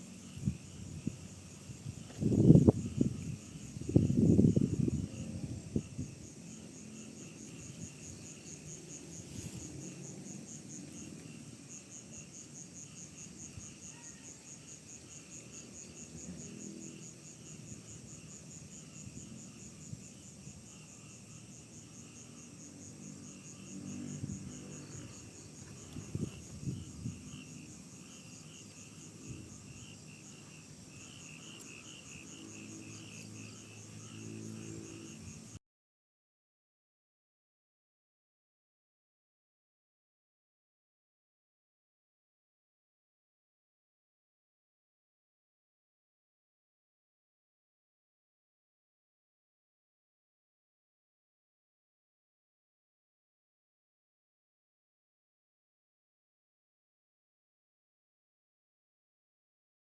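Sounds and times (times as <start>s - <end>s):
crickets trilling: 0.0s - 35.6s
lower insect chirping: 0.0s - 35.6s.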